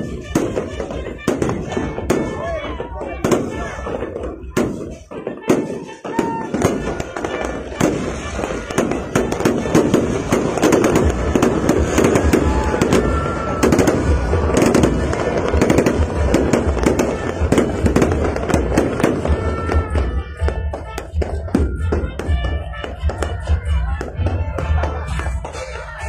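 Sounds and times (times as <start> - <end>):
fireworks bangs and crackles: 0.0 - 26.0
firework whistles: 4.4 - 22.5.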